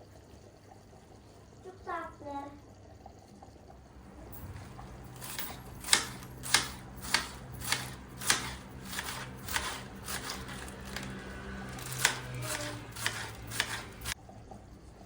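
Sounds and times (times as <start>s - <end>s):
short sharp strokes: 4.2s - 14.2s.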